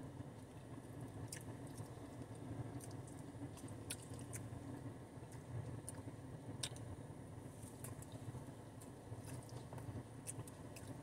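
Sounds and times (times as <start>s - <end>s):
person chewing: 1.3s - 4.5s, 8.8s - 11.0s.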